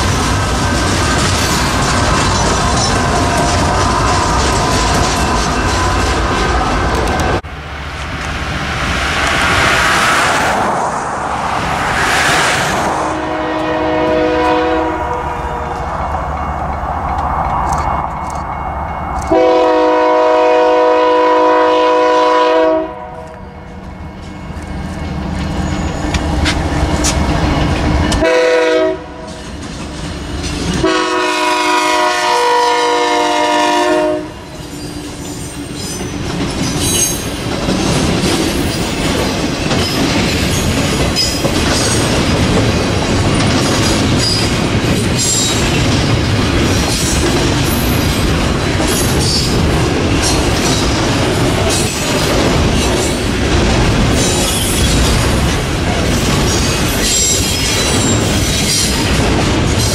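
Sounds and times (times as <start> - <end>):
train wheels clattering on rails: 0.0 - 7.4, 23.2 - 28.4, 29.0 - 31.9, 34.5 - 59.9
locomotive air horn: 13.1 - 15.9, 19.3 - 23.3, 28.2 - 29.3, 30.8 - 34.5.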